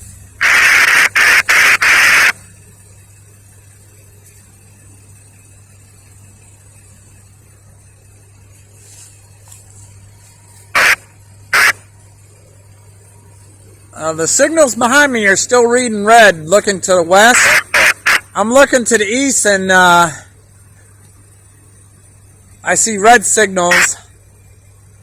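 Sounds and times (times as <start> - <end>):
low steady hum: 0.0 - 25.0
radio squelch static bursts: 0.4 - 2.5, 8.9 - 12.0, 13.3 - 20.2, 22.6 - 24.1.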